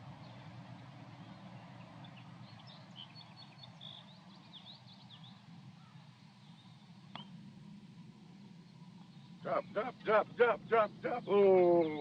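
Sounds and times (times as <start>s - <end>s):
low outdoor rumble: 0.0s - 12.0s
bird chirping: 0.1s - 7.4s.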